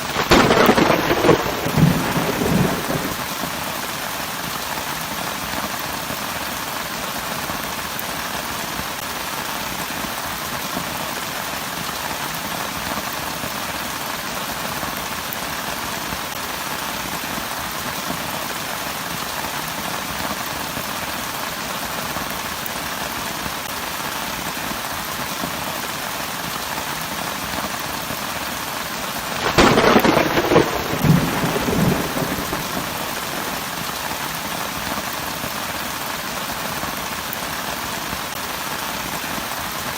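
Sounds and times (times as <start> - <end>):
thunder clap: 0.0 - 3.7, 29.4 - 34.0
heavy rain: 0.0 - 39.9.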